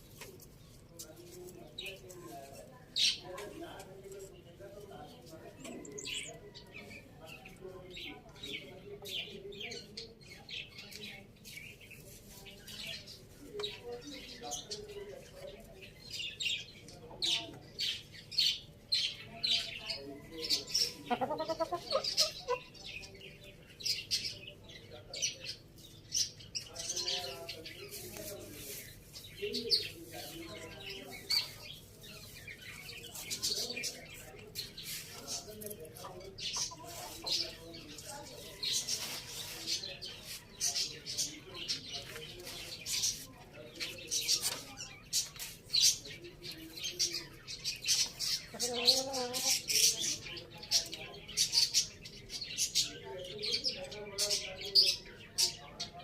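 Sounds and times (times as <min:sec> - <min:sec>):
chickens clucking softly: 0:19.6 - 0:26.3, 0:27.3 - 0:43.2, 0:43.8 - 0:52.0.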